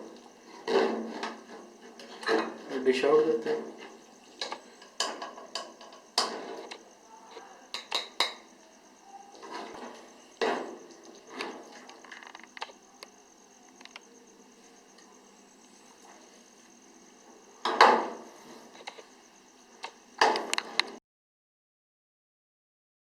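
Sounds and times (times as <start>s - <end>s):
spoon knocking and scraping pot: 7.7s - 8.5s.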